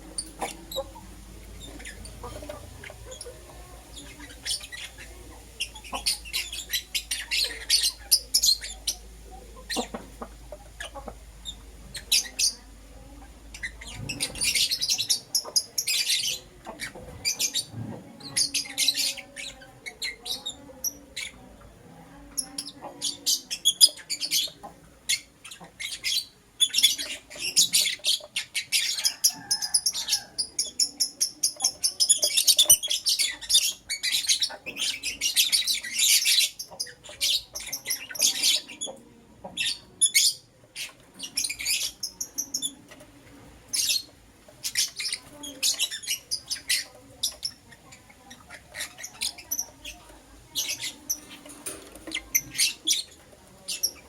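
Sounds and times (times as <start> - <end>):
lovebirds chirping: 0.0 - 54.0.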